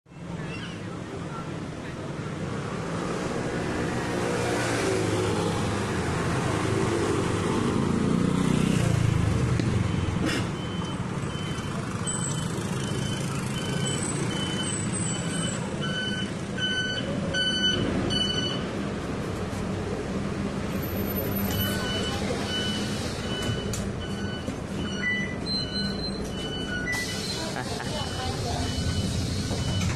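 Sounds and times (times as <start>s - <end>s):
bus engine running: 18.7s - 29.9s
high electronic beeps: 21.4s - 27.4s.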